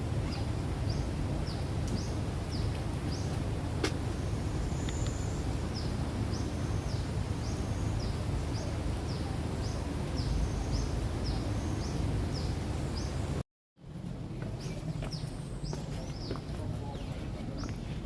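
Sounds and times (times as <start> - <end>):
bird chirping: 4.2 - 13.3.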